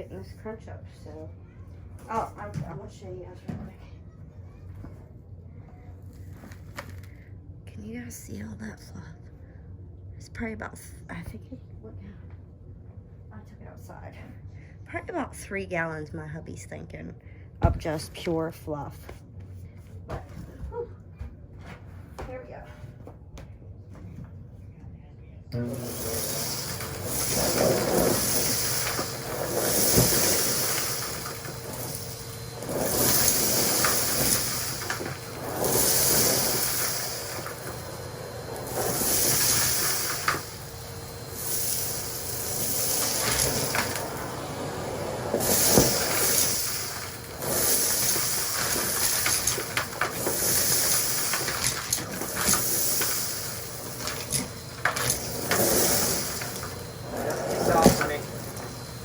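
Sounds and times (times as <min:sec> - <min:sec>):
debris rattling up vacuum hose: 0:25.7 - 0:59.0
vacuum cleaner air hiss: 0:25.7 - 0:59.0.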